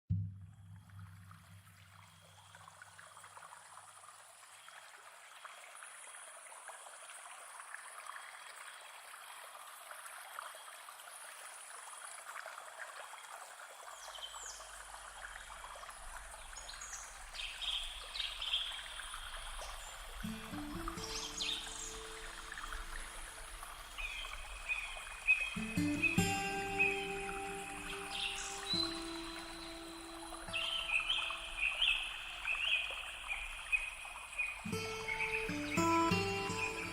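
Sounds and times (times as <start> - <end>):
water trickling: 0.6 - 36.9.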